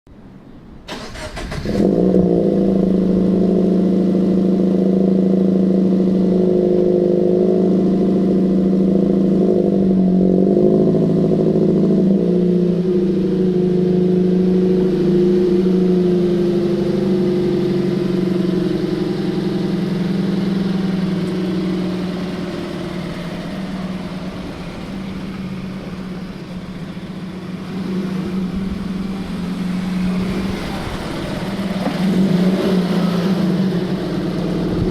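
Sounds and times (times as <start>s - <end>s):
car engine starting and idling: 0.1s - 34.9s.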